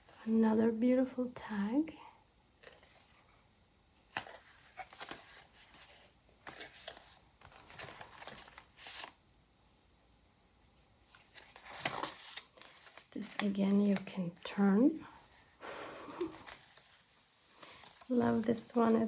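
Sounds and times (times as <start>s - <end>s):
paper rustling: 4.1s - 9.2s, 11.1s - 19.0s.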